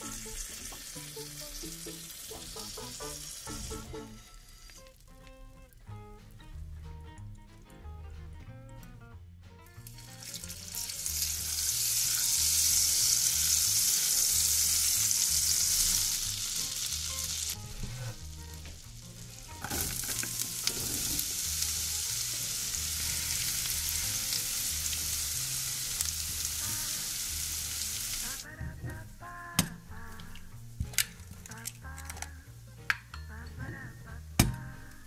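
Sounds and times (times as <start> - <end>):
food sizzling in a pan: 0.0 - 5.7, 9.8 - 28.5.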